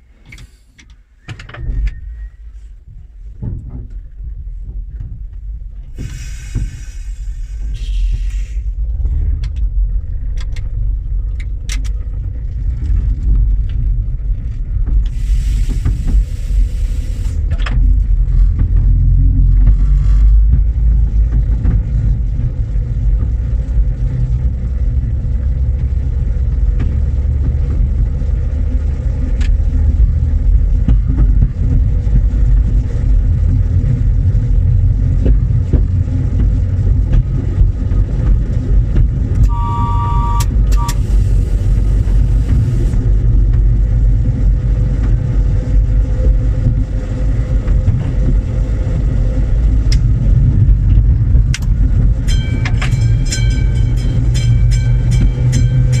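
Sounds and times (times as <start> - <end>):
train rumbling on track: 0.0 - 56.0
short hiss: 6.0 - 8.7
two-tone train signal: 39.4 - 42.2, 52.2 - 56.0.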